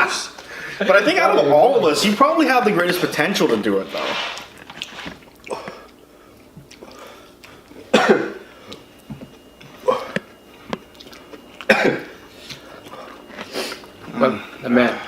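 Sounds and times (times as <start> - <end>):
person coughing: 7.9 - 8.4, 11.6 - 12.2.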